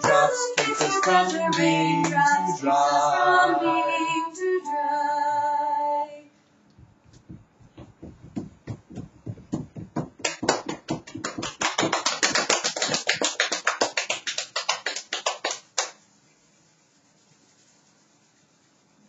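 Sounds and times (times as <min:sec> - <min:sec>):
hand percussion strikes: 0:07.2 - 0:12.0.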